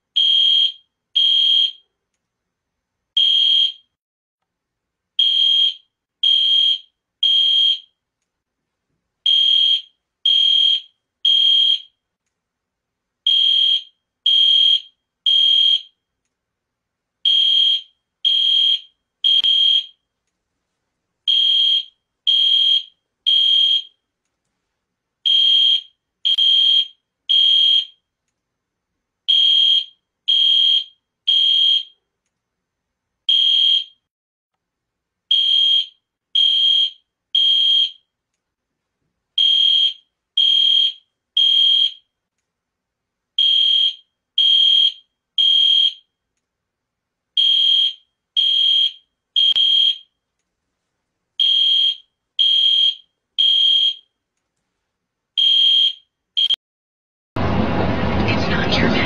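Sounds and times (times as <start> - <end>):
fire alarm beeps: 0.2 - 1.9, 3.2 - 4.0, 5.2 - 8.0, 9.3 - 12.0, 13.3 - 16.0, 17.3 - 20.1, 21.3 - 24.0, 25.3 - 28.1, 29.3 - 32.0, 33.3 - 34.1, 35.3 - 38.1, 39.4 - 42.2, 43.4 - 46.1, 47.4 - 50.2, 51.4 - 54.1, 55.4 - 56.6.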